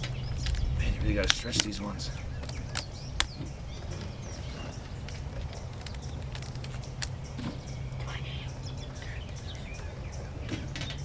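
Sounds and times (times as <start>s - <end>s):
rubber bands stretching: 0.0s - 7.8s
birds chirping faintly: 0.0s - 11.0s
low outdoor background: 0.0s - 11.0s.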